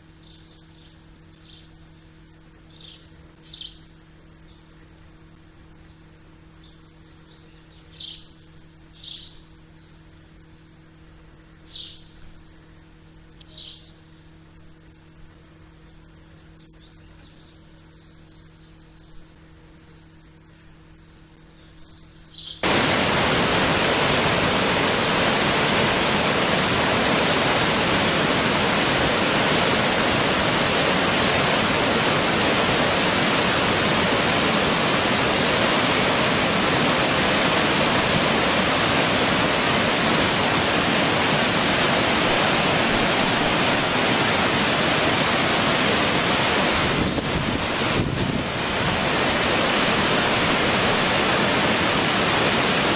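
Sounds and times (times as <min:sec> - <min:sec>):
faint steady hum: 0:00.0 - 0:52.9
high bird chirps: 0:02.7 - 0:03.8, 0:06.6 - 0:08.4, 0:09.0 - 0:09.4, 0:11.7 - 0:12.2, 0:13.3 - 0:15.2, 0:21.4 - 0:22.6
loud steady rushing noise: 0:22.6 - 0:52.9.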